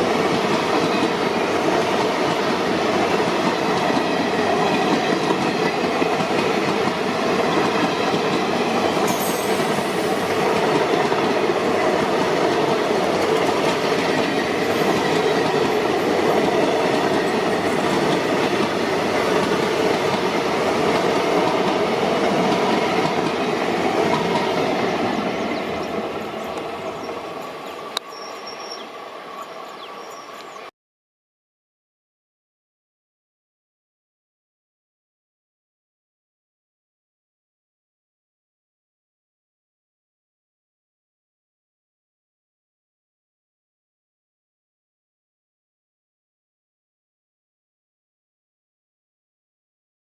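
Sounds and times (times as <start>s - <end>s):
train wheels rolling on rails: 0.0s - 30.6s.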